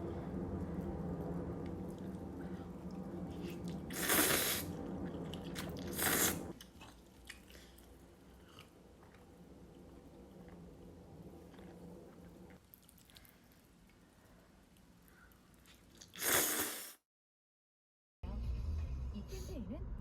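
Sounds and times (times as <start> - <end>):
low steady hum: 0.0 - 15.8
person chewing food: 2.8 - 16.2.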